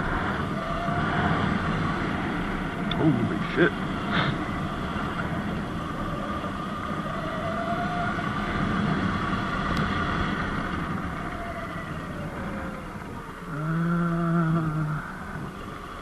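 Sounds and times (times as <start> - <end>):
tyre noise on dirt road: 0.0 - 16.0.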